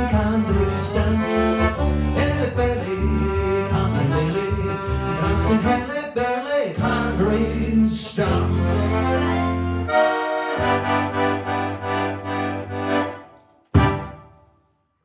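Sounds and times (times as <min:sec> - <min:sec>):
accordion chords: 0:00.0 - 0:14.6
sharp knock: 0:13.7 - 0:14.4.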